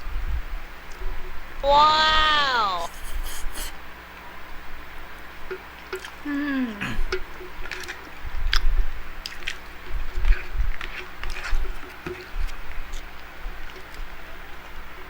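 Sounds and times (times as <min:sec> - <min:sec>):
voiced hum falling in pitch: 0:01.6 - 0:03.2.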